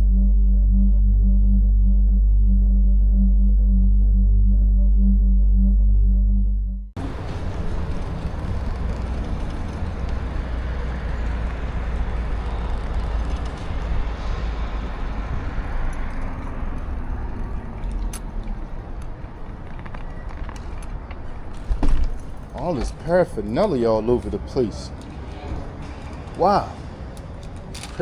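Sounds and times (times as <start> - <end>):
urban traffic: 7.0 - 28.0
wind and road rumble: 7.0 - 28.0.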